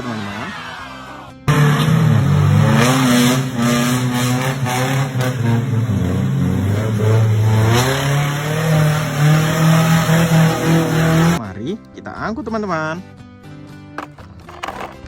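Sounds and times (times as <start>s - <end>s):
car engine revving: 1.5s - 11.4s.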